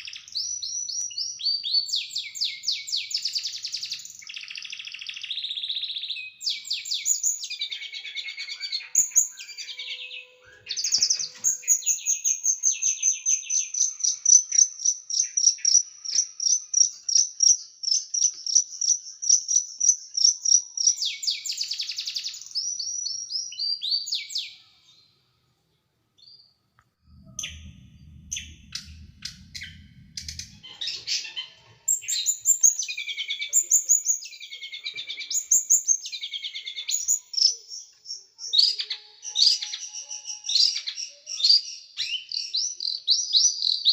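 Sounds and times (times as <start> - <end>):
low hum: 26.8 - 32.3.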